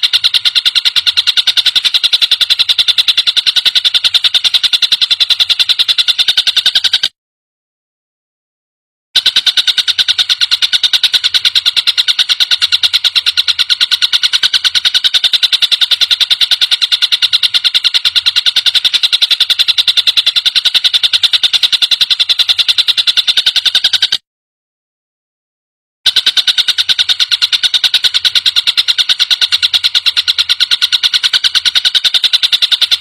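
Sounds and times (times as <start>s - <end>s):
kingfisher rattling call: 0.0s - 7.1s, 9.2s - 24.2s.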